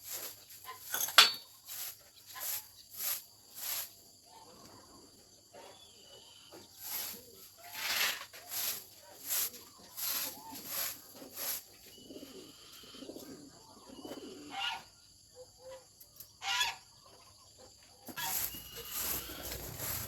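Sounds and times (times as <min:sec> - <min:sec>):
poultry calling: 0:09.3 - 0:15.8, 0:16.4 - 0:17.3, 0:18.1 - 0:20.0.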